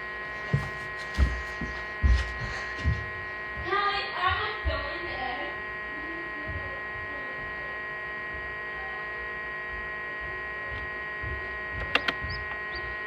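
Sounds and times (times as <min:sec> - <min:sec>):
incubator electrical hum: 0:00.0 - 0:13.0
sharp clicks: 0:11.8 - 0:12.8.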